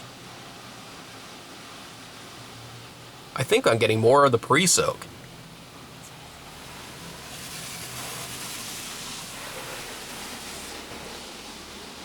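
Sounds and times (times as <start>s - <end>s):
car wash spray hissing: 3.4s - 12.0s.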